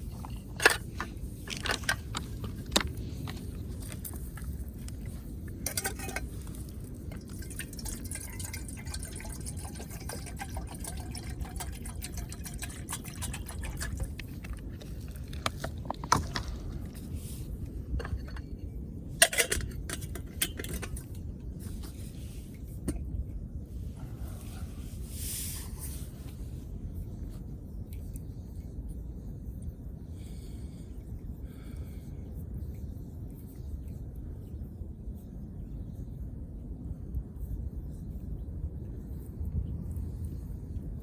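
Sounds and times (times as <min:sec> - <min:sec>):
water pouring into container: 0:07.1 - 0:14.3.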